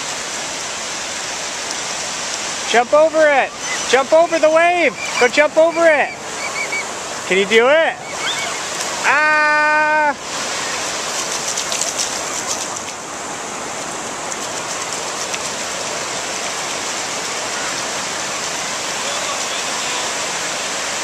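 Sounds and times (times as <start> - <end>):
ocean surf hissing: 0.0 - 21.0
child shrieking: 8.0 - 10.2.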